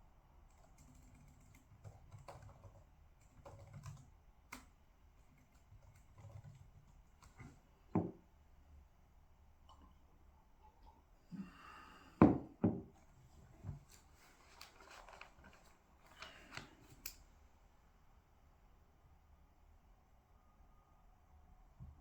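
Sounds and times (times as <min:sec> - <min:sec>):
typing on keyboard: 0:00.5 - 0:07.6.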